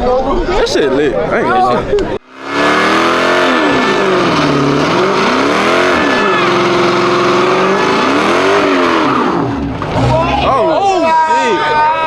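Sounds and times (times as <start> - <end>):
car engine revving hard: 2.2 - 10.6.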